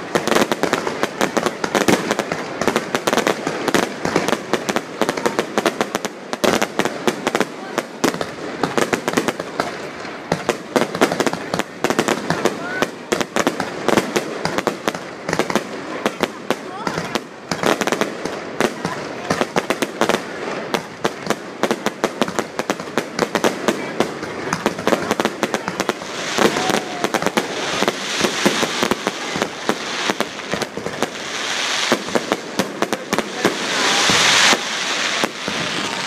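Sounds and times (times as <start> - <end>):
fireworks cracks and bangs: 0.0 - 36.0
hissing crackle: 22.3 - 36.0.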